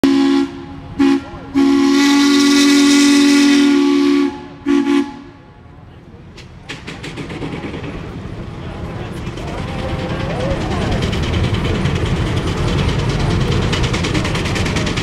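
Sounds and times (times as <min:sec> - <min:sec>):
steam whistle blasts: 0:00.0 - 0:05.4
steam hissing: 0:06.7 - 0:15.0.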